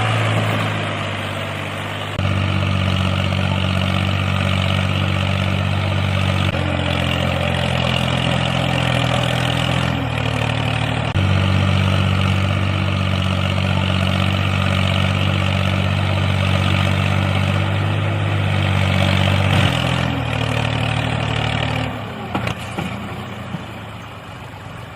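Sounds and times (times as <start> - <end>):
small diesel engine running: 0.0 - 24.9.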